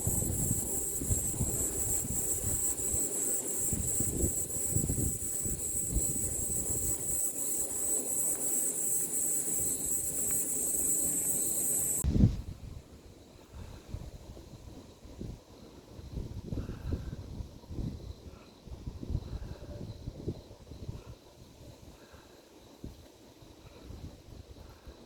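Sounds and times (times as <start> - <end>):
insects chirping chorus: 0.0 - 12.0
wind rumble on microphone: 0.0 - 22.0, 22.8 - 25.0.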